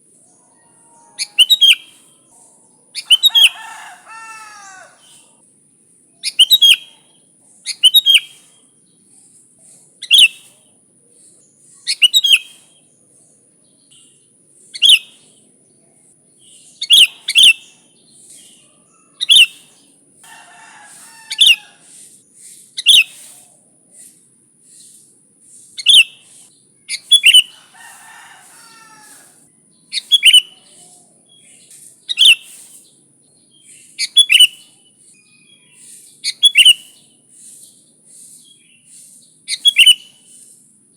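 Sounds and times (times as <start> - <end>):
faint bird warbling: 0.4 - 5.4.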